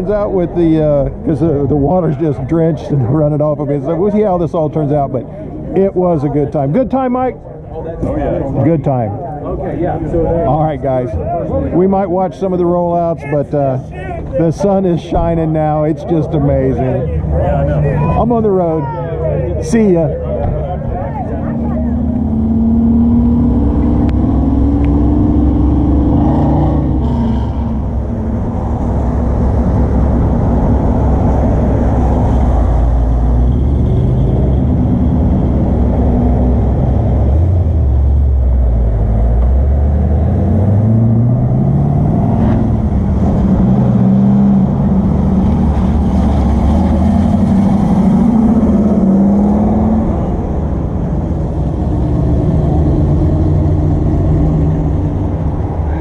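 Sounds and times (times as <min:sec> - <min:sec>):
motorcycle engine accelerating: 0:20.2 - 0:55.8.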